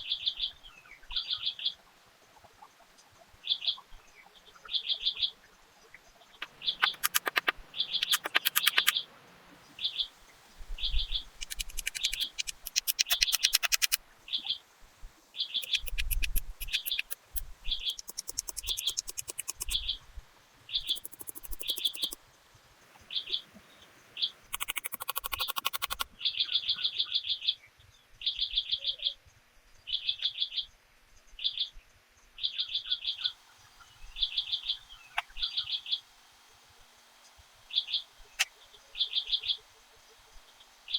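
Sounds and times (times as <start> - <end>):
rapid clicking: 6.4 - 9.0, 11.3 - 14.0, 15.6 - 19.8, 20.9 - 22.2, 24.6 - 26.0
bird chirping: 6.4 - 14.6, 15.3 - 20.0, 20.7 - 22.2, 22.9 - 27.2, 32.5 - 36.1, 37.6 - 40.9.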